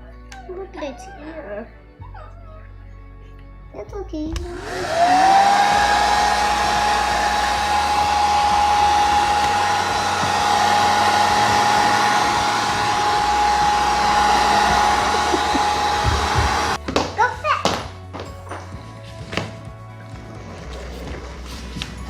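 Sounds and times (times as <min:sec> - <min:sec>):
hair dryer running: 0:04.4 - 0:16.8.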